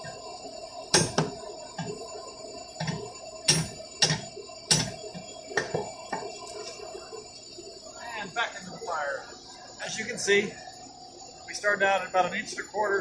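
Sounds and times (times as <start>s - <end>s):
steady hum: 0.0s - 13.0s
hammer striking hot steel: 0.9s - 2.0s, 2.8s - 6.2s.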